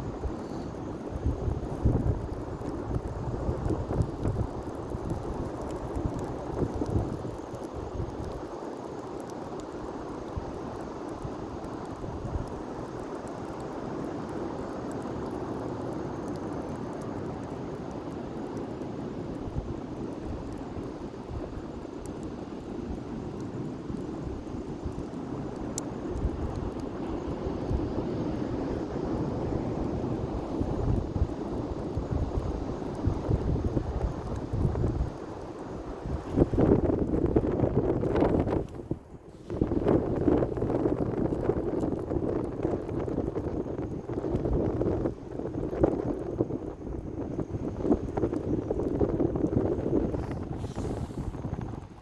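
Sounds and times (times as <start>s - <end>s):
wind buffeting microphone: 0.0s - 8.4s, 22.8s - 52.0s.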